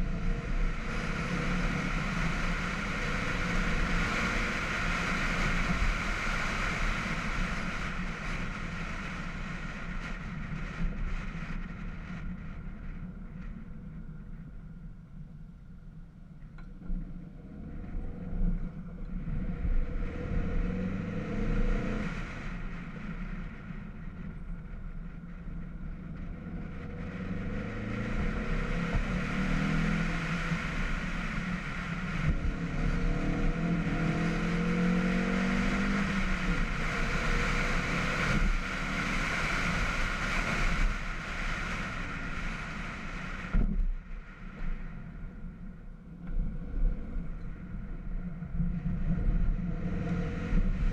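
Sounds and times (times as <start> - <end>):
car engine revving through gears: 26.4 - 40.9, 48.6 - 50.9.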